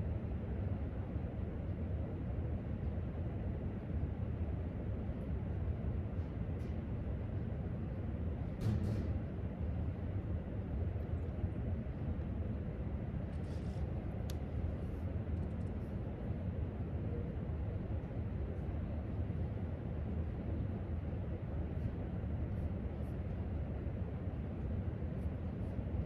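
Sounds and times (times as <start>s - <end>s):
low room rumble: 0.0s - 26.0s.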